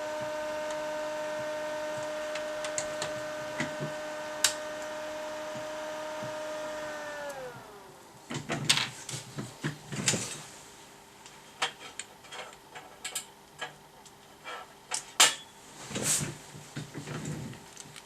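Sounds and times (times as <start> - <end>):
faint steady hum: 0.0 - 18.0
tools clattering on a workbench: 11.6 - 13.8, 14.4 - 15.5.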